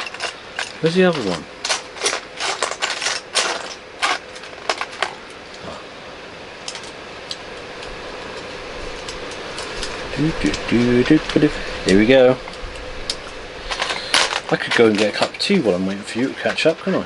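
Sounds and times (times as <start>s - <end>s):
plastic pieces clicking and rattling: 0.0s - 5.1s
electric fan hiss: 0.0s - 17.0s.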